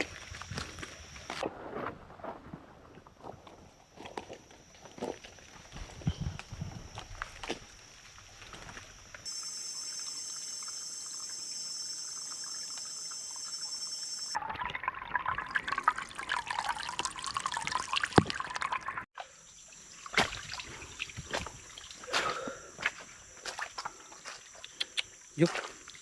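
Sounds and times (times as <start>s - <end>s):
water trickling and splashing: 6.9s - 26.0s
high-pitched buzz: 9.3s - 14.4s.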